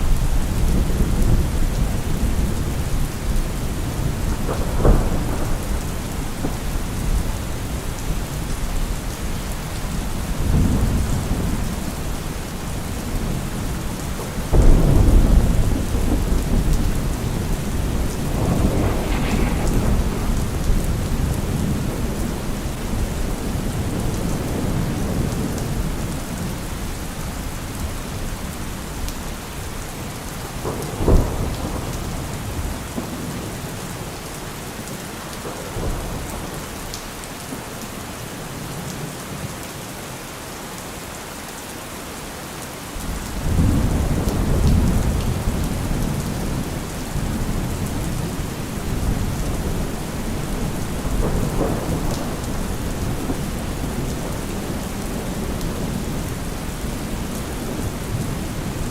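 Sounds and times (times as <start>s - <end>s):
loud thunderclap: 0.0s - 8.2s, 14.2s - 26.1s, 30.6s - 33.6s, 43.4s - 58.9s
rolling thunder: 0.0s - 26.6s, 29.0s - 34.0s, 43.0s - 58.9s
steady rain: 0.0s - 58.9s.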